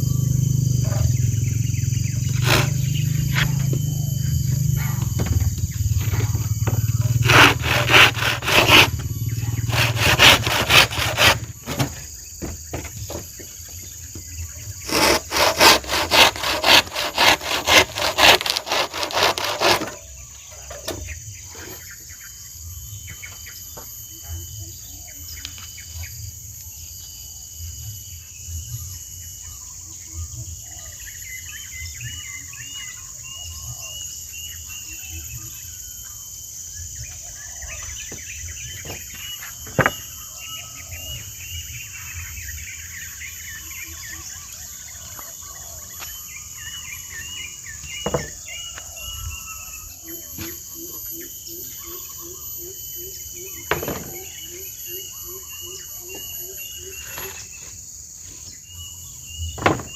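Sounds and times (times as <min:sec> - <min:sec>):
birds chirping and warbling: 0:00.0 - 0:59.9
insects droning: 0:00.0 - 0:59.9
sharp knocks: 0:48.0 - 0:48.4, 0:53.7 - 0:54.3, 0:59.6 - 0:59.9.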